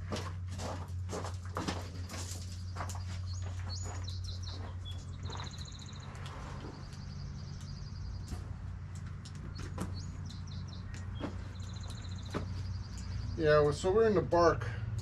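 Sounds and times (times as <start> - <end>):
songbirds chirping trills: 0.0 - 15.0
sharp clicks: 5.6 - 13.8.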